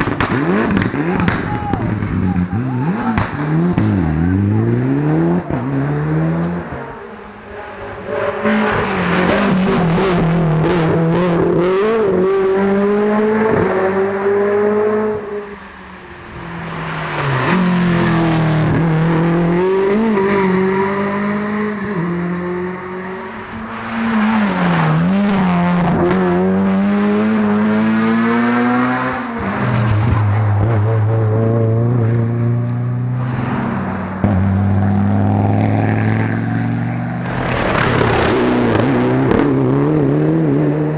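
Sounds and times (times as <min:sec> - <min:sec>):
sharp cracks: 0:00.0 - 0:02.3, 0:37.2 - 0:39.8
rally car engines revving: 0:00.0 - 0:40.9.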